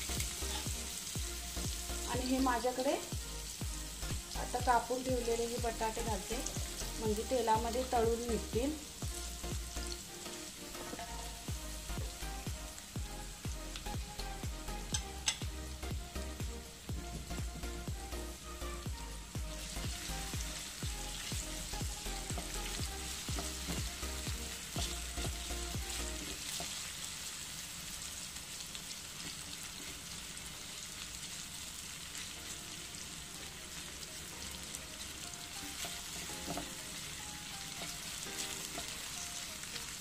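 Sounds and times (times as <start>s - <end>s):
potatoes sizzling in oil: 0.0s - 40.0s
spatula tapping and scraping: 14.9s - 15.5s, 35.8s - 36.8s.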